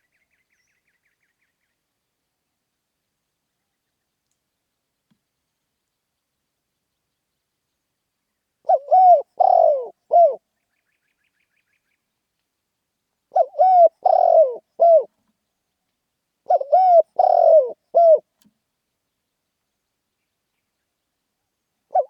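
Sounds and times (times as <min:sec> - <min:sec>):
dove cooing: 0:08.6 - 0:10.4, 0:13.3 - 0:15.1, 0:16.5 - 0:18.3.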